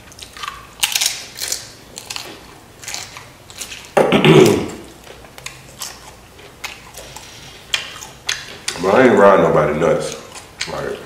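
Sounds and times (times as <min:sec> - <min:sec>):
chewing crunchy chips: 0:00.0 - 0:09.3, 0:09.9 - 0:11.0
mouth smacks: 0:03.2 - 0:08.8.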